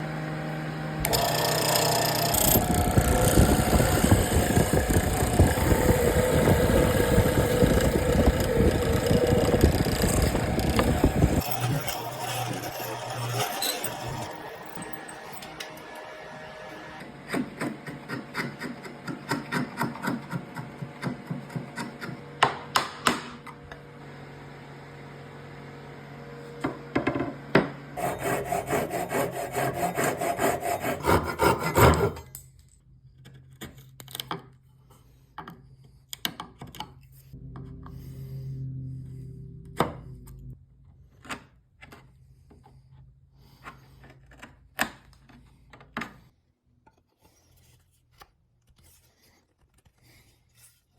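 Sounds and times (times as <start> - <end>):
hand saw sawing wood: 1.0 - 15.2, 16.5 - 22.7, 28.0 - 32.3.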